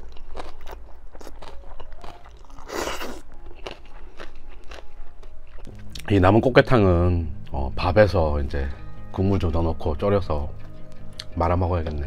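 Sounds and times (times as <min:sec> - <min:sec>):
person chewing noodles: 0:00.0 - 0:06.1, 0:10.6 - 0:12.0.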